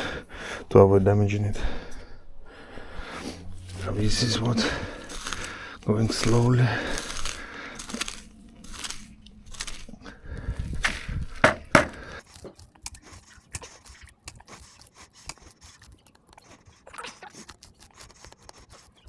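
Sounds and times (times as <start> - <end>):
earth crunching and scraping: 2.8 - 19.0
hand tool striking soil: 10.8 - 18.9.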